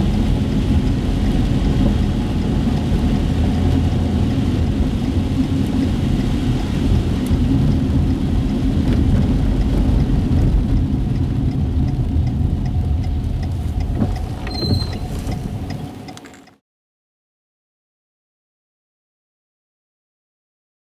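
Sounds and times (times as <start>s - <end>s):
car road and engine rumble: 0.0s - 16.6s
light ticks: 0.1s - 16.6s
high squeak: 14.3s - 15.6s.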